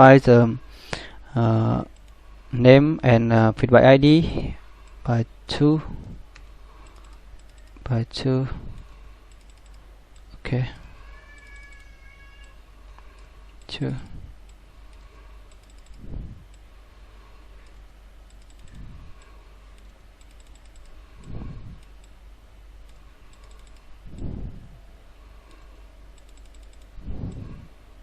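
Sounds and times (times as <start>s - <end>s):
typing on computer keyboard: 6.8s - 7.8s, 9.3s - 10.3s, 14.9s - 16.0s, 17.6s - 22.2s, 22.9s - 24.3s, 25.5s - 27.4s.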